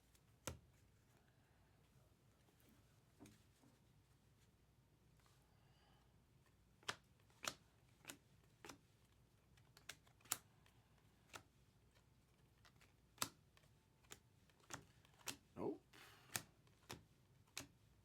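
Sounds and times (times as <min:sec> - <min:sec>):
trading cards clicking: 0:06.8 - 0:08.8, 0:09.5 - 0:15.5, 0:16.3 - 0:17.7.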